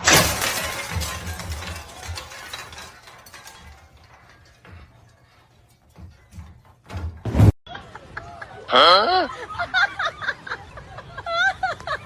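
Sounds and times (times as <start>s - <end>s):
rattling and clinking: 0.0s - 7.2s.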